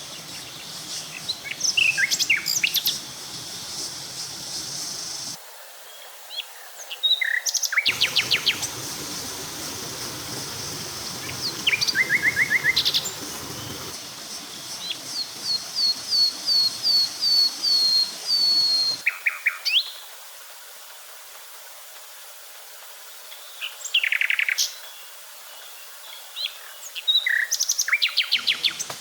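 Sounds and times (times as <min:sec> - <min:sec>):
birds trilling and whistling: 0:00.0 - 0:05.4, 0:07.9 - 0:19.0
insect hiss: 0:00.0 - 0:29.0.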